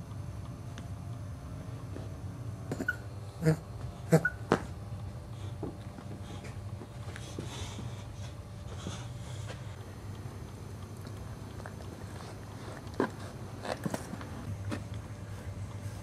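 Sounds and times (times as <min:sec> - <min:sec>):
dog breathing noisily: 0:05.2 - 0:10.1.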